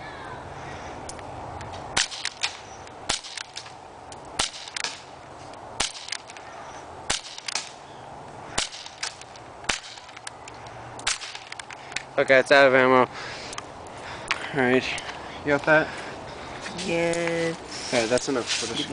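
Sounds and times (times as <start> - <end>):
airsoft pistol shots cracking: 2.0 - 3.8, 4.4 - 5.1, 5.8 - 6.4, 7.1 - 7.8, 8.5 - 10.3, 11.0 - 11.7.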